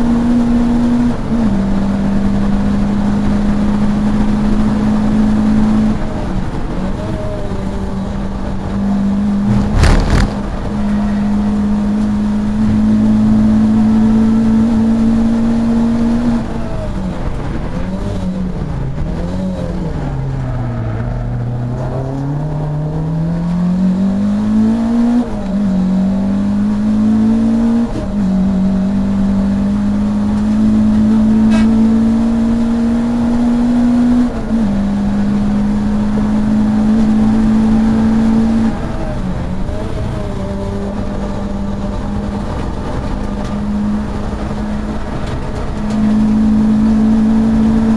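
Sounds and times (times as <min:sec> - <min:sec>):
racing car engine revving: 0:00.0 - 0:47.9
sharp bang: 0:09.4 - 0:10.6.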